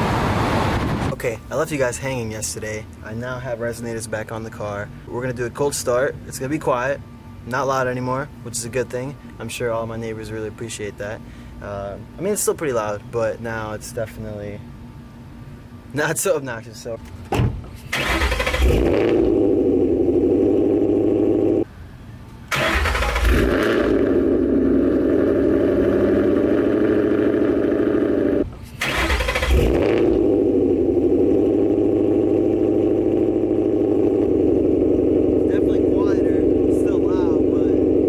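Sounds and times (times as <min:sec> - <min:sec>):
car engine cold start and idle: 0:17.7 - 0:38.0.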